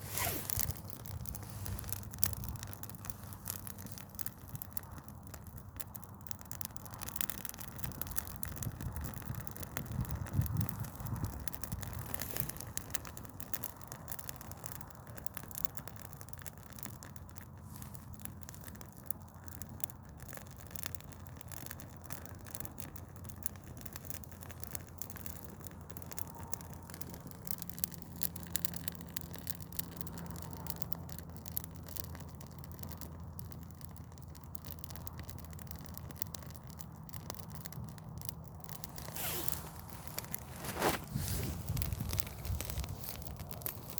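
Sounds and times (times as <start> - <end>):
steady low rumble: 0.0 - 6.2, 23.4 - 43.9
tree burning crackling: 0.0 - 43.9.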